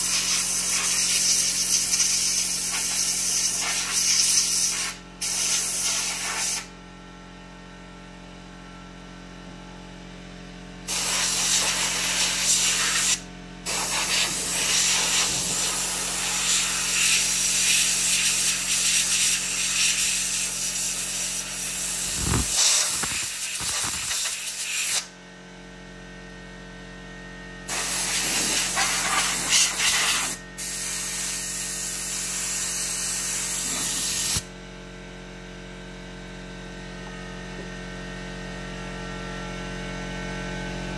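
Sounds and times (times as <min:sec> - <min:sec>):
compressed air hissing: 0:00.0 - 0:06.7, 0:10.9 - 0:20.9, 0:21.6 - 0:25.1, 0:27.7 - 0:34.4.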